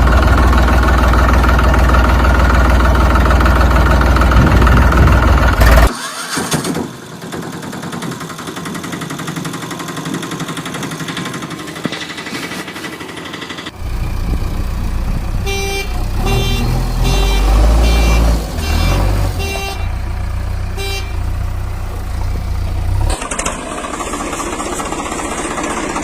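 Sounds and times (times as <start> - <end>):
deep vehicle engine rumble: 0.0 - 5.9, 13.7 - 26.0
vehicle horn honks: 15.3 - 21.6.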